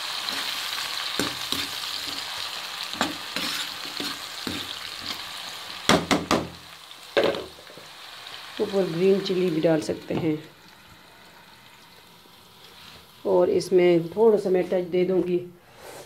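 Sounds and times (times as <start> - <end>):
potatoes sizzling in oil: 0.0 - 15.4
spoon scraping through food: 3.0 - 5.2
spoon knocking against pan: 5.9 - 6.6.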